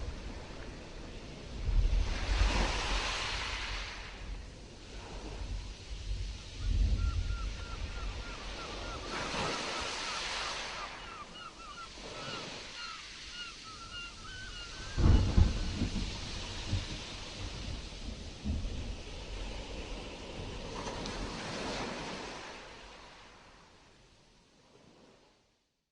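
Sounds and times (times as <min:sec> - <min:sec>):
wind buffeting microphone: 0:00.0 - 0:10.5, 0:14.1 - 0:22.5
waves washing: 0:00.0 - 0:24.0.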